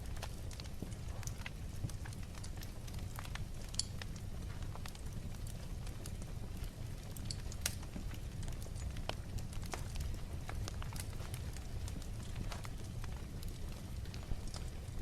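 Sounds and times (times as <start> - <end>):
fire low rumble: 0.0 - 15.0
wood fire crackling: 0.0 - 15.0.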